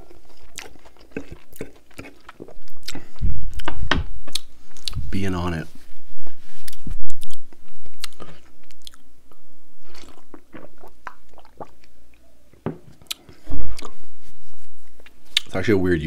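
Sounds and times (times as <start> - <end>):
man chewing with wet clicks: 0.0 - 5.0, 6.6 - 14.0, 14.8 - 15.6
sips and swallows: 9.8 - 12.0.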